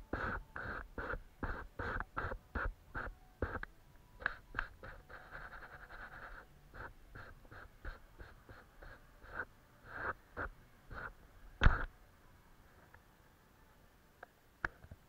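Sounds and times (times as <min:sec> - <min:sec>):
paintbrush strokes on paper: 0:00.0 - 0:03.6, 0:04.2 - 0:11.8.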